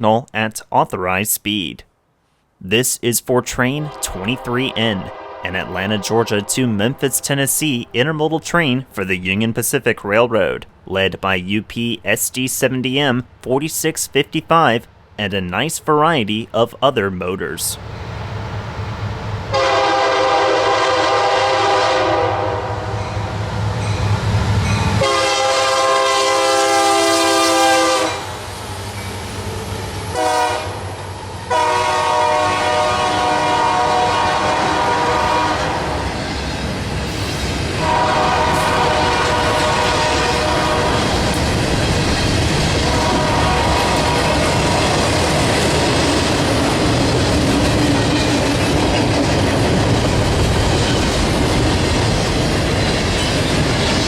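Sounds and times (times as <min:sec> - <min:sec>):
locomotive horn blasts: 0:03.8 - 0:07.4, 0:19.5 - 0:23.0, 0:25.0 - 0:28.3, 0:30.1 - 0:30.8, 0:31.5 - 0:35.9, 0:37.8 - 0:41.1, 0:42.9 - 0:44.8
passing train wheel and engine noise: 0:17.8 - 0:54.0.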